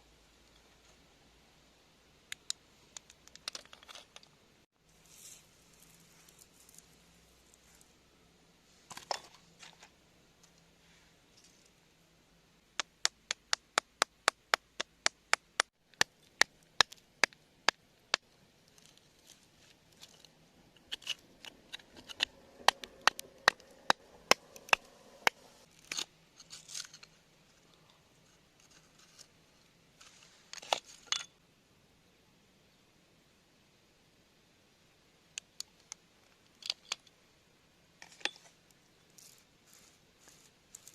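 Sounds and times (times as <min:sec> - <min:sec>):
tool scraping rock: 0:18.7 - 0:27.1.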